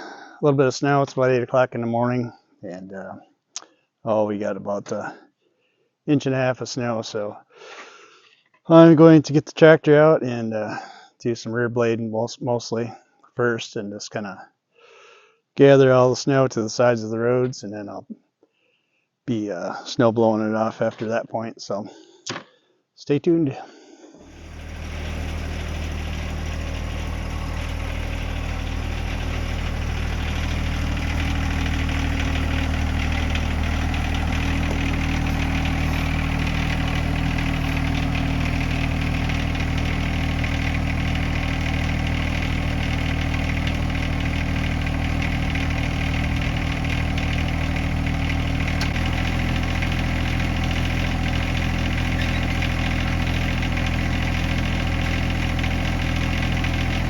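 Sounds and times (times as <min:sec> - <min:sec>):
tractor diesel engine idling: 0:24.2 - 0:57.0.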